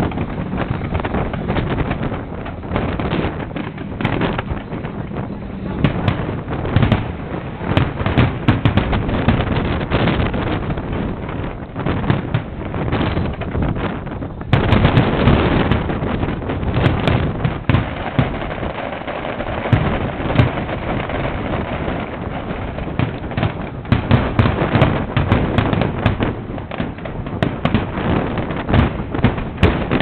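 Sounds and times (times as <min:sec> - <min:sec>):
deep firework booms: 0:00.0 - 0:30.0
fireworks cracking and popping: 0:00.0 - 0:30.0.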